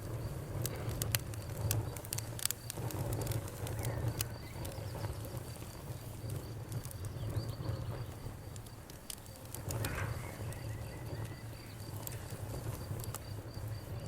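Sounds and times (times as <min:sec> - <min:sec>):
cricket chirping: 0:00.0 - 0:14.0
low hum of burning: 0:00.0 - 0:14.0
wood fire crackling and popping: 0:00.0 - 0:14.0.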